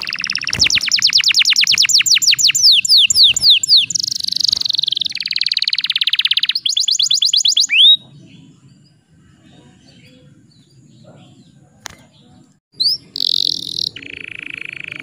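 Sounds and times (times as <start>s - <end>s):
canary singing trills: 0.0s - 15.0s.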